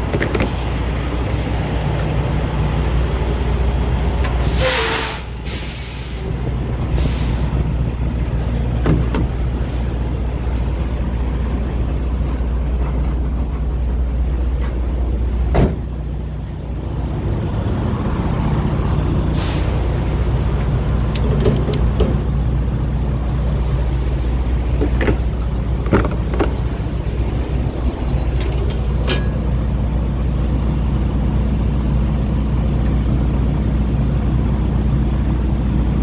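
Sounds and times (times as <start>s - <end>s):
diesel trucks idling: 0.0s - 36.0s
air brake hisses: 4.4s - 6.4s, 7.0s - 7.6s, 19.3s - 19.9s
sharp clunk: 15.5s - 15.8s, 28.4s - 29.5s.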